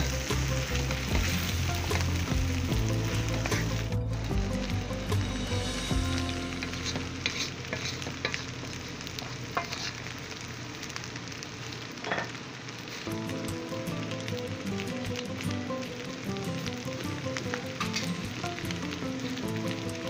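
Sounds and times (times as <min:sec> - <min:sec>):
rice sizzling in a wok: 0:00.0 - 0:20.0
spatula scraping a wok: 0:05.2 - 0:10.2.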